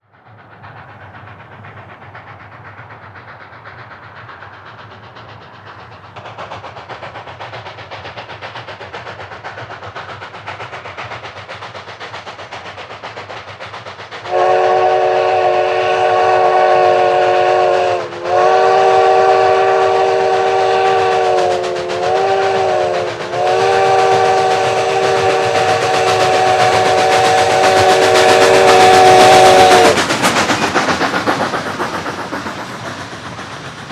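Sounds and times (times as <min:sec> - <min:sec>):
steam locomotive running: 0:00.0 - 0:33.9
steam whistle blasts: 0:14.3 - 0:30.0.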